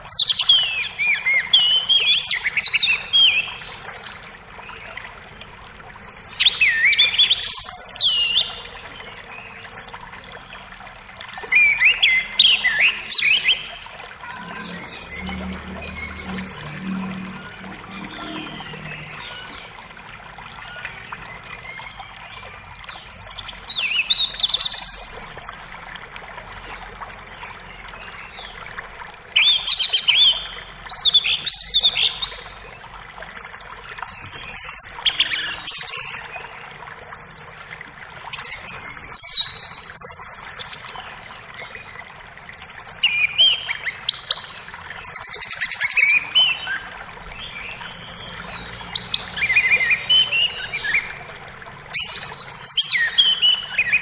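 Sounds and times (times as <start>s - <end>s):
creek water rushing: 0.0s - 54.0s
songbirds chirping and trilling: 11.4s - 24.9s, 40.5s - 54.0s.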